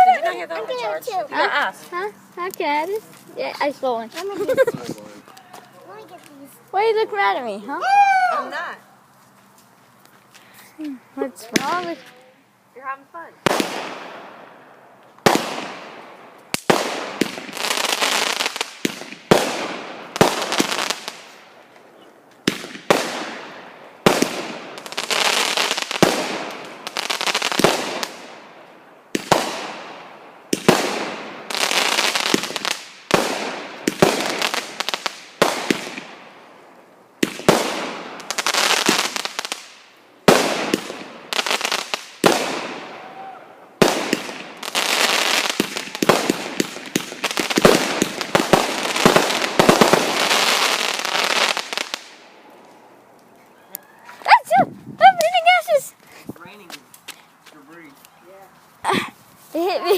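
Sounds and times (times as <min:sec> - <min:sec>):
fireworks crackling and hissing: 0:00.0 - 0:07.8, 0:08.4 - 0:59.9
fireworks bangs: 0:11.3 - 0:12.2, 0:13.4 - 0:21.6, 0:22.4 - 0:36.4, 0:37.2 - 0:52.4.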